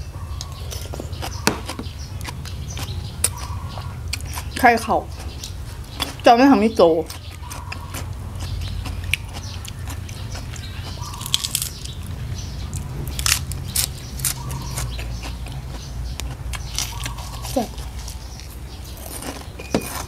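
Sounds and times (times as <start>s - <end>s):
person chewing and biting: 0.4s - 4.6s, 7.1s - 20.0s
small crisp crunches: 10.6s - 12.0s.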